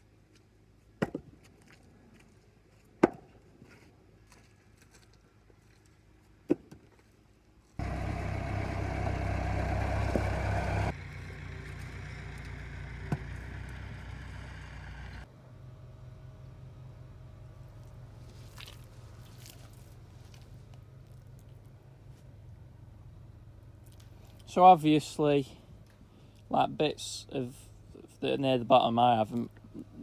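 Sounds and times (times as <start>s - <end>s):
engine running: 7.8s - 28.4s.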